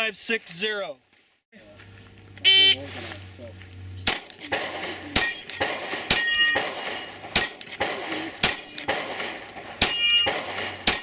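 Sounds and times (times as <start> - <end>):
gunshots: 4.0 - 11.0
steel target ringing: 4.8 - 11.0.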